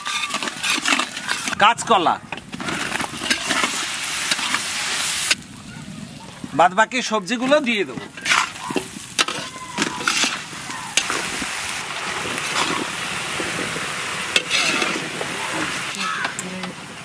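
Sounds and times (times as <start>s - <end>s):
oil sizzling: 0.0s - 17.0s.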